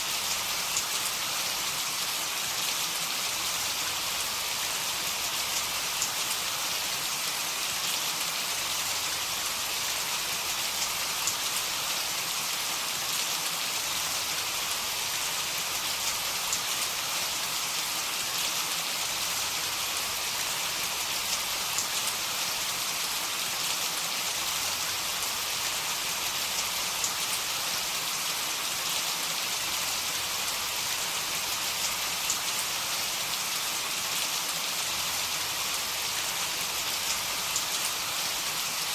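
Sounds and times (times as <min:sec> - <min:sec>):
heavy rain falling: 0:07.8 - 0:38.9.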